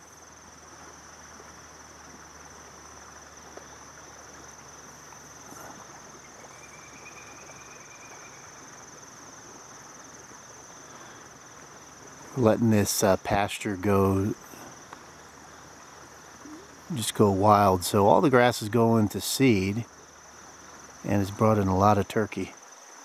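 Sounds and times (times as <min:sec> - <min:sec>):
lower insect note: 0:00.0 - 0:13.2
crickets chirping: 0:00.0 - 0:23.0.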